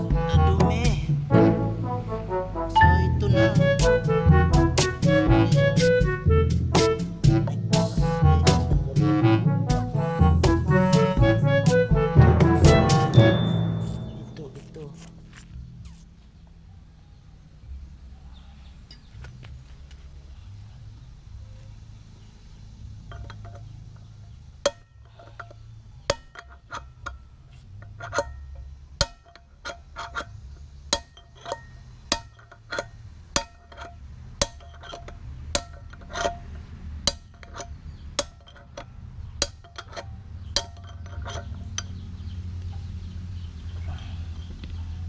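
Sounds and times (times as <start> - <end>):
hammer striking metal: 12.3 - 15.4, 24.6 - 25.5, 26.1 - 27.2, 28.1 - 30.3, 30.9 - 36.4, 37.0 - 38.8, 39.4 - 42.0.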